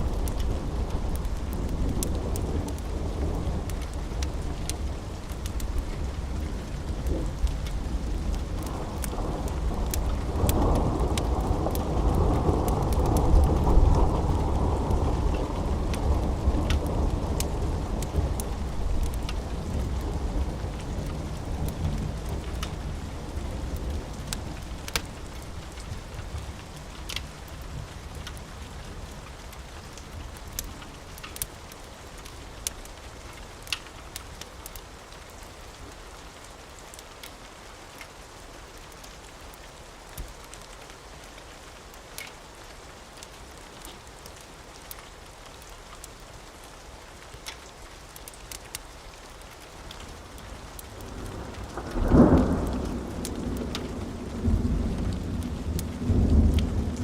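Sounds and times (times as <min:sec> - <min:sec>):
steady rain: 0:00.0 - 0:57.0
thunder rumble: 0:51.0 - 0:57.0.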